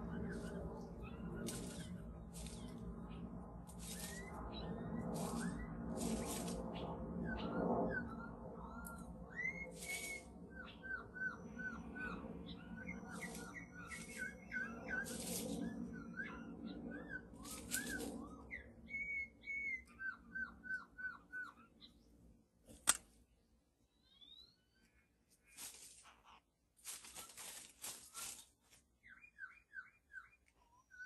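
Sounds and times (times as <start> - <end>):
harsh rasping bird calls: 0.0 - 22.1
whistled bird notes: 0.0 - 22.1, 23.9 - 25.6, 27.0 - 31.0
sharp click: 22.7 - 23.1.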